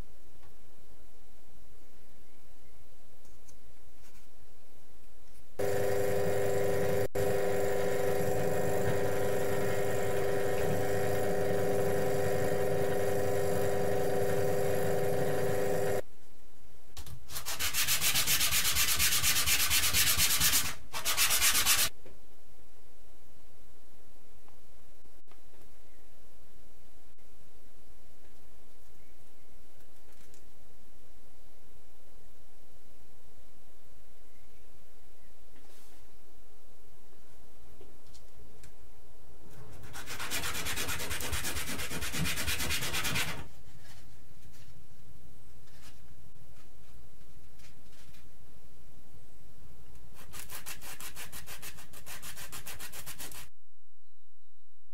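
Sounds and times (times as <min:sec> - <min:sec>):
hand sanding strokes: 0:17.3 - 0:21.9, 0:39.8 - 0:43.5, 0:50.2 - 0:53.5.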